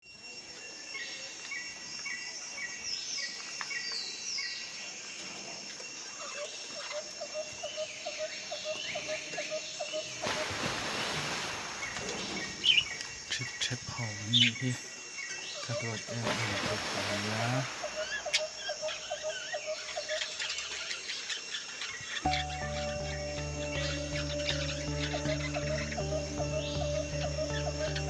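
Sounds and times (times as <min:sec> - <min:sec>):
low repeated bird call: 0:15.5 - 0:28.0
budgerigars chirping: 0:15.6 - 0:28.0.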